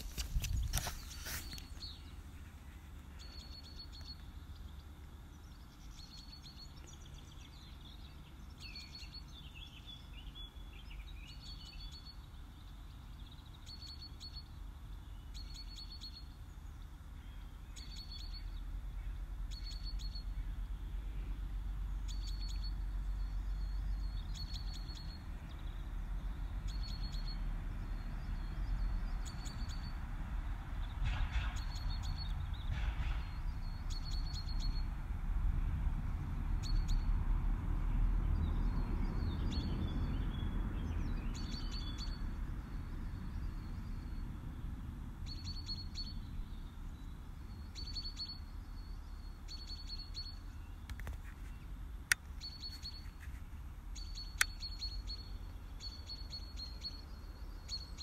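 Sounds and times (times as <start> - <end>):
birds chirping: 0.0 - 30.1, 38.4 - 58.0
gliding bird song notes: 0.8 - 16.8, 19.5 - 20.6, 22.0 - 25.8, 26.4 - 30.0, 30.8 - 35.0, 38.5 - 44.4, 45.3 - 50.9, 51.5 - 53.3, 54.0 - 58.0.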